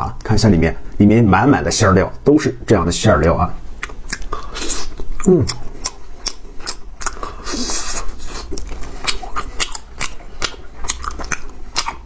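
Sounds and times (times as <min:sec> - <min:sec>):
chewing with mouth clicks: 0:03.8 - 0:12.0.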